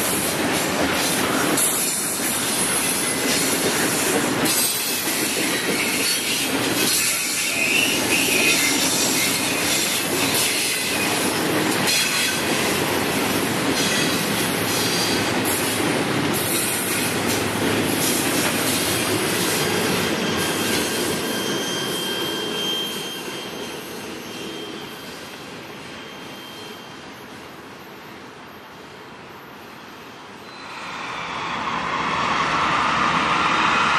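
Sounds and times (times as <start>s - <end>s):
thin wheel squeal: 20.3s - 25.2s, 26.0s - 27.0s.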